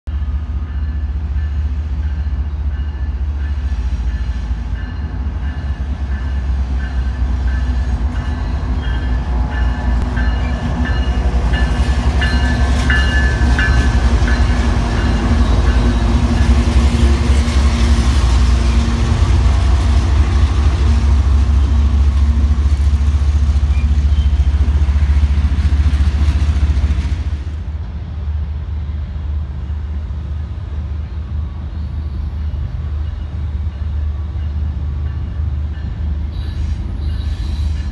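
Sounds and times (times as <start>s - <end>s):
diesel locomotive rumbling past: 0.1s - 37.9s.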